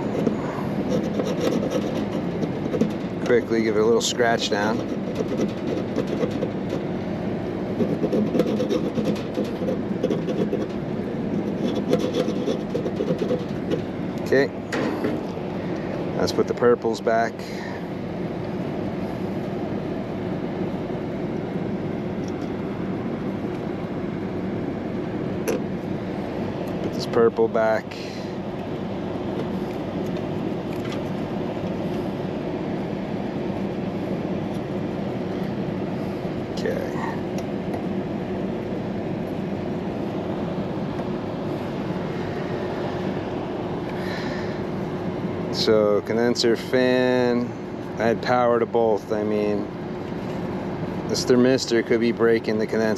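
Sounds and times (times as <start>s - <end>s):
air conditioning hum and air rush: 0.0s - 52.9s.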